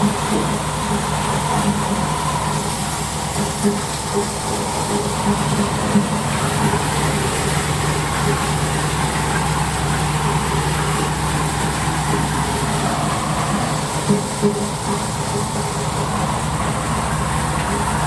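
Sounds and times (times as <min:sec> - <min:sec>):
motor humming: 0:00.0 - 0:18.0
threshing machine rattling: 0:00.0 - 0:18.0.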